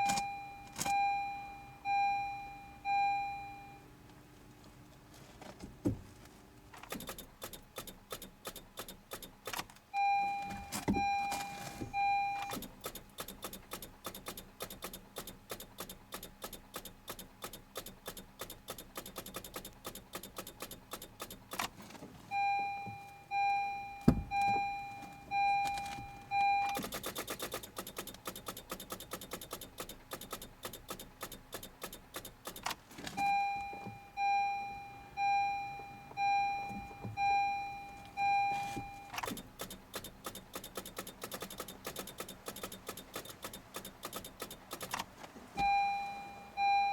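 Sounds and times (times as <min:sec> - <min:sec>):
car warning chime beeping: 0:00.0 - 0:04.3, 0:07.0 - 0:21.6, 0:22.3 - 0:45.0, 0:45.6 - 0:46.9
rapid clicks from car: 0:06.6 - 0:09.9, 0:12.4 - 0:22.1, 0:25.6 - 0:33.3, 0:39.1 - 0:45.8.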